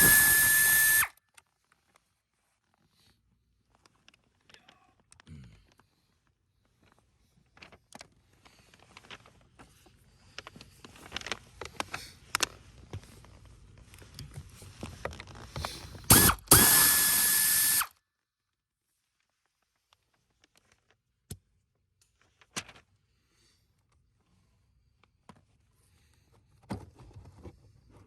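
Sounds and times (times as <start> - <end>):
power tool motor spinning: 0.0 - 1.1, 16.1 - 17.9.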